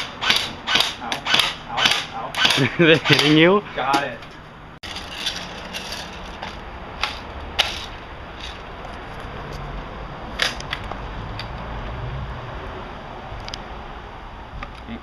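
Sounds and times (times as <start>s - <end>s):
bb gun shots snapping: 0.0s - 3.4s.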